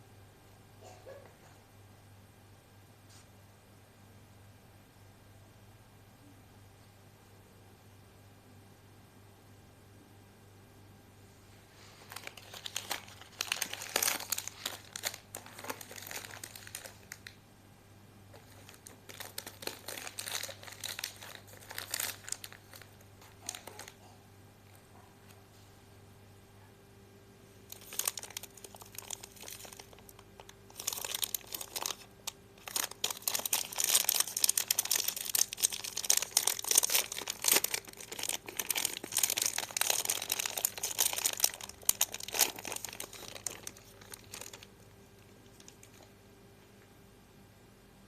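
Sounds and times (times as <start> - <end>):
soap wrapper crinkling: 12.1 - 17.4, 18.4 - 24.0, 27.7 - 46.1.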